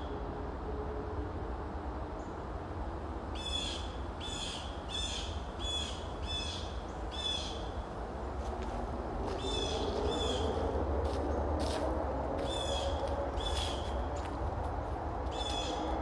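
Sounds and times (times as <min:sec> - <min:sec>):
distant highway traffic rumble: 0:00.0 - 0:16.0
bird calling: 0:15.3 - 0:15.9.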